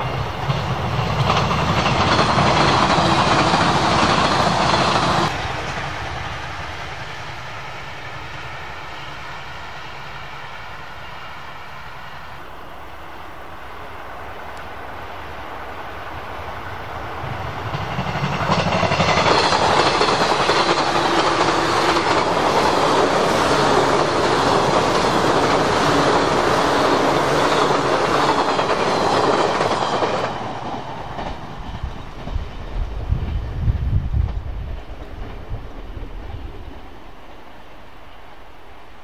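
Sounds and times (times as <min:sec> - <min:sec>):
electric train passing: 0:00.0 - 0:39.0
wind buffeting microphone: 0:30.0 - 0:37.5.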